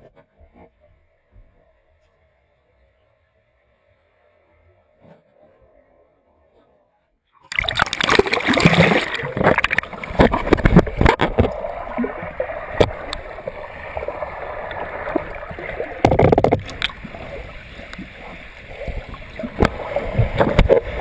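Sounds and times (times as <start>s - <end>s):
rushing churning water: 7.5s - 21.0s.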